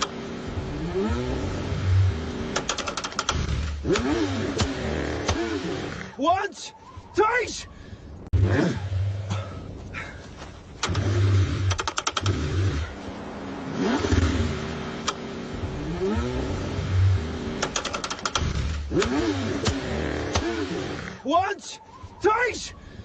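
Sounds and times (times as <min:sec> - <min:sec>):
rising and falling whines: 0:00.0 - 0:02.7, 0:10.8 - 0:17.7
car engine cranking: 0:00.0 - 0:06.2, 0:10.7 - 0:13.1, 0:13.7 - 0:21.2
fast even clicking: 0:02.5 - 0:05.4, 0:11.7 - 0:12.4, 0:17.6 - 0:20.5.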